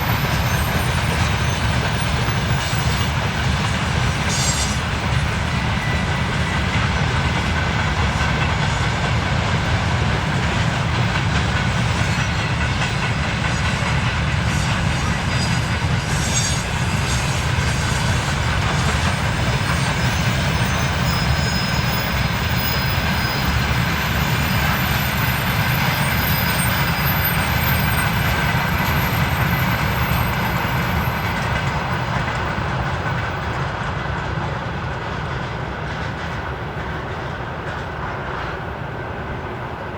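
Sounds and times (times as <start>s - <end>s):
faint high wheel squeal: 0.0s - 6.9s, 14.4s - 32.0s
train wheels clattering over rail joints: 0.0s - 39.1s.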